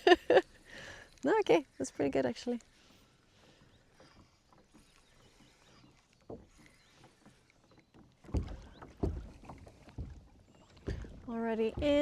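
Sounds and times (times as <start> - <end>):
dull heavy thumps on hull: 8.0 - 12.0
light knock on kayak: 8.3 - 12.0.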